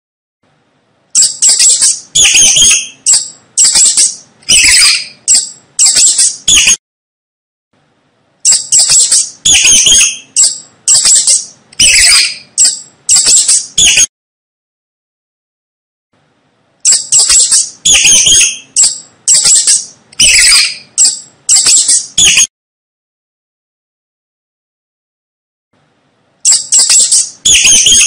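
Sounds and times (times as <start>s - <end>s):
mouse squeaking: 1.2s - 6.8s, 8.4s - 14.1s, 16.8s - 22.5s, 26.4s - 28.0s.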